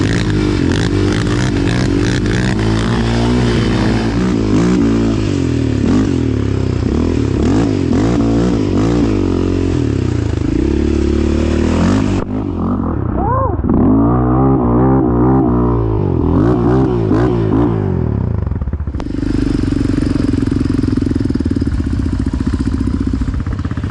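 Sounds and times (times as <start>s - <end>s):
quad engine revving: 0.0s - 23.9s.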